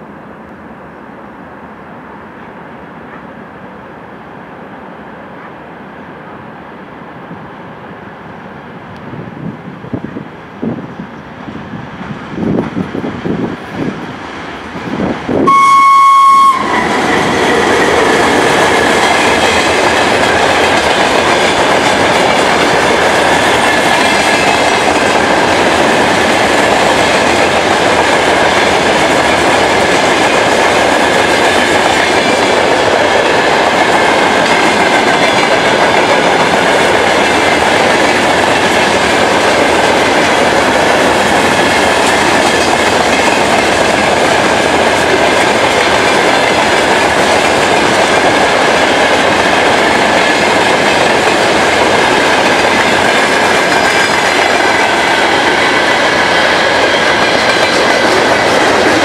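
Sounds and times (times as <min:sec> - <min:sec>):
locomotive approaching: 0:00.0 - 0:59.0
locomotive horn blast: 0:15.4 - 0:17.1
wheels clattering on rails: 0:16.7 - 0:59.0.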